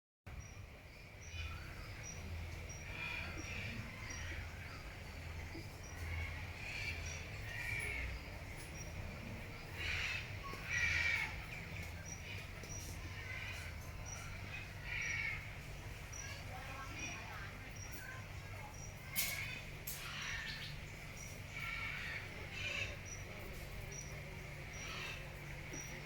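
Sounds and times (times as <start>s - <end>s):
harsh crow-like calls: 2.8s - 5.0s, 5.9s - 8.9s, 9.6s - 16.4s, 19.1s - 24.0s, 24.7s - 25.9s.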